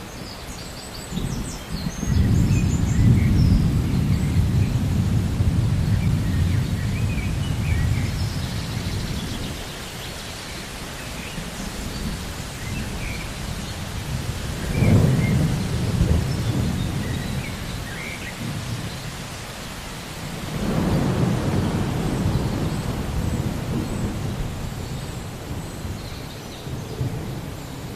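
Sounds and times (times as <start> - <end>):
steady rain: 0.0 - 27.9
rolling thunder: 1.2 - 9.6, 11.8 - 19.1, 20.3 - 26.0.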